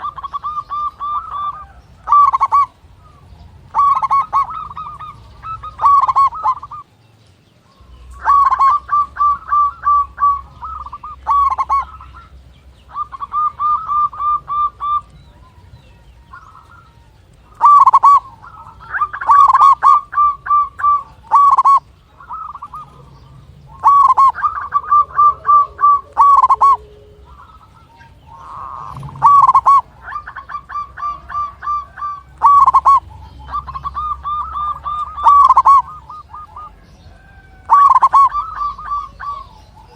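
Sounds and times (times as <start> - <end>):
dove cooing in pulsed notes: 0.0 - 7.0, 7.6 - 39.9.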